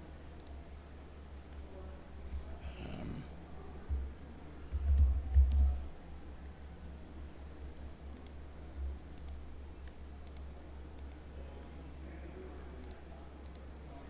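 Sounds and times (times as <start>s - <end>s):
steady low hum: 0.0s - 4.5s
computer mouse clicks: 0.4s - 0.6s, 8.1s - 8.4s, 9.1s - 9.4s, 10.2s - 11.3s, 12.6s - 13.7s.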